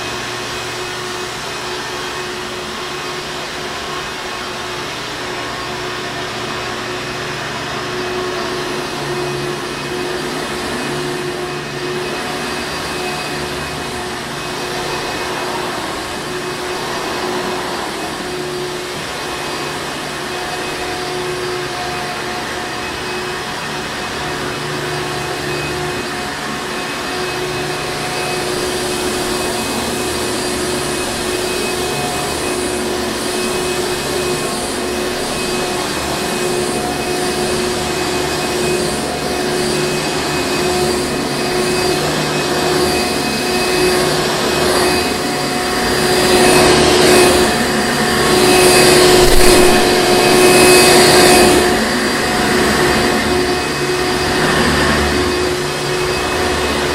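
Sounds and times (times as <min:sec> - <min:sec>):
vacuum cleaner running: 0:00.0 - 0:56.9.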